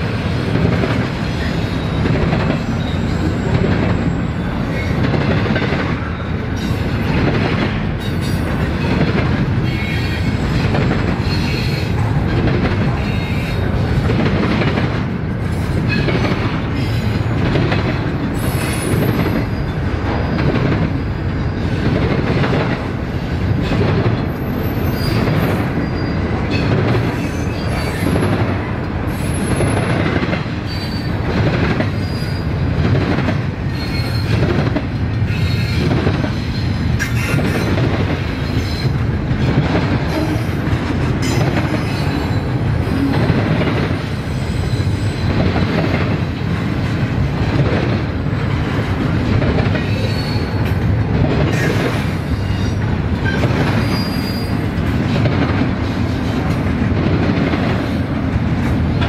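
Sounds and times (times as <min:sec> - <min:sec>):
train wheels rumbling on rails: 0:00.0 - 0:59.0
high wheel squeals: 0:24.3 - 0:28.2, 0:52.5 - 0:54.6.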